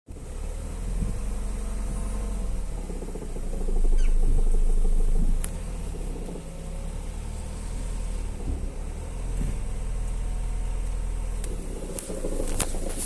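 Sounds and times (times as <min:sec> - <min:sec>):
diesel engine idling: 0:00.1 - 0:13.0
metallic knocking rattle: 0:01.0 - 0:06.7, 0:11.4 - 0:13.0.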